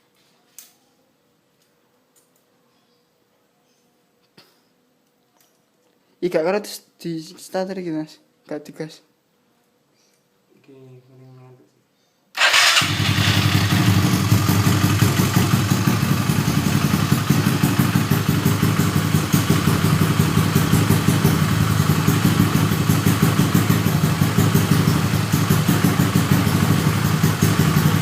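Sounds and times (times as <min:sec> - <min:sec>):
scooter engine idling: 0:12.4 - 0:28.0.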